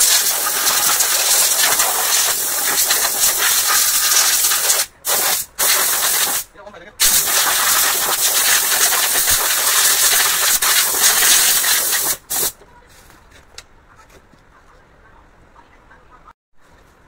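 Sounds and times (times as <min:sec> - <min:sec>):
loud even hiss: 0:00.0 - 0:12.6.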